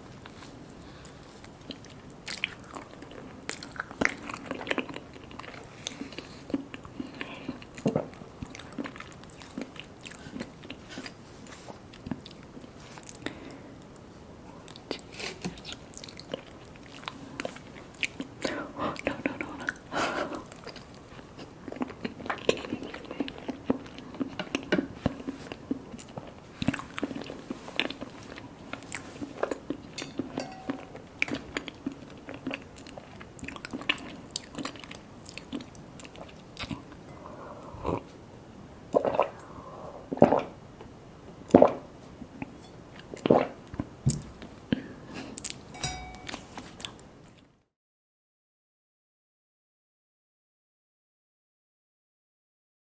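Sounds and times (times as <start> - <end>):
chewing cake: 0.2 - 14.0, 14.6 - 38.2.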